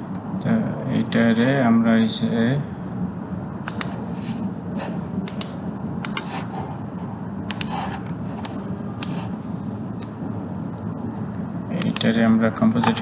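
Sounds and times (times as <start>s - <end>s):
low background hum: 0.0s - 13.0s
computer mouse clicking: 3.7s - 4.0s, 5.2s - 6.5s, 7.5s - 9.3s, 11.8s - 13.0s.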